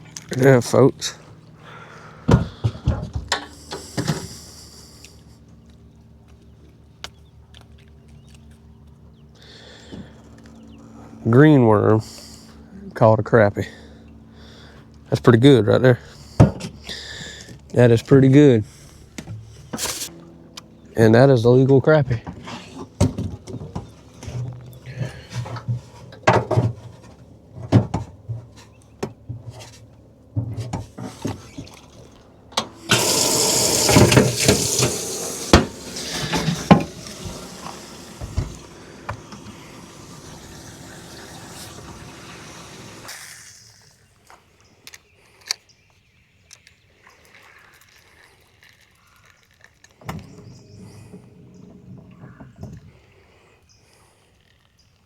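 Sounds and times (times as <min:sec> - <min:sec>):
water gushing: 0:32.8 - 0:44.0.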